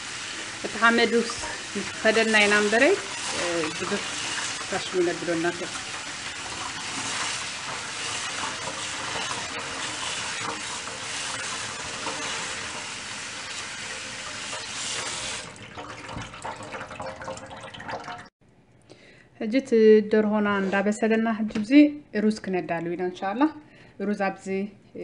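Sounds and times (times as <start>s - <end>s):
water running: 0.0s - 18.3s.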